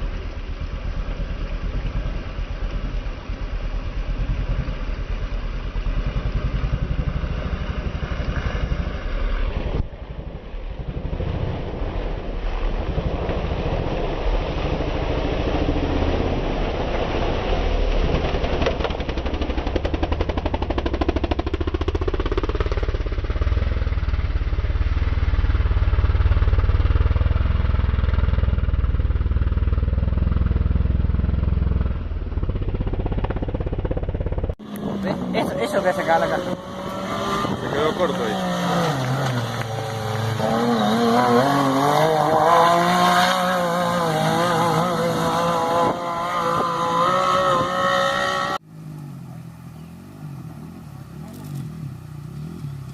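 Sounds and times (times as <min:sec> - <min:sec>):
racing engines revving: 0:34.6 - 0:52.9.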